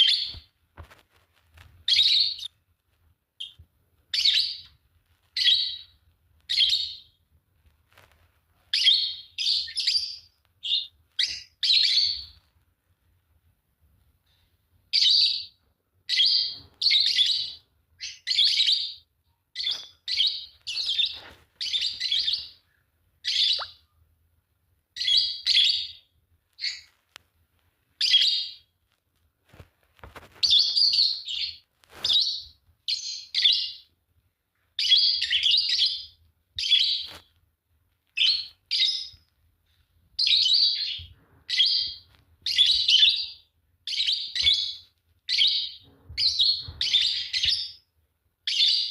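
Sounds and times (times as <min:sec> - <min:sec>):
lovebirds chirping shrilly: 0:00.0 - 0:00.5, 0:01.9 - 0:02.5, 0:04.1 - 0:04.7, 0:05.4 - 0:07.2, 0:08.8 - 0:12.4, 0:19.6 - 0:22.6, 0:23.2 - 0:23.9, 0:26.6 - 0:26.9, 0:30.4 - 0:33.9, 0:40.2 - 0:47.8.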